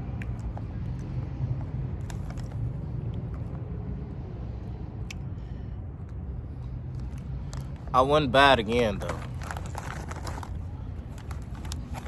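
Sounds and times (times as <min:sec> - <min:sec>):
person chewing crunchy chips: 0:09.0 - 0:12.0.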